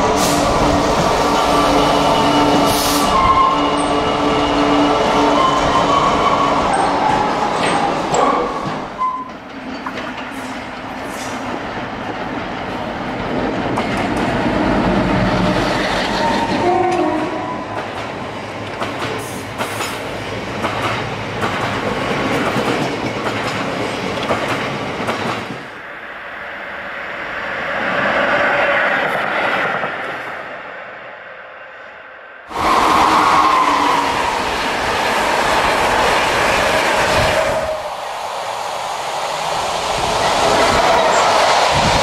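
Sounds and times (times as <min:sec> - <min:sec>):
diesel locomotive approaching: 0:00.0 - 0:42.0
freight train passing: 0:00.0 - 0:42.0
train horn: 0:16.2 - 0:17.7, 0:32.5 - 0:34.4.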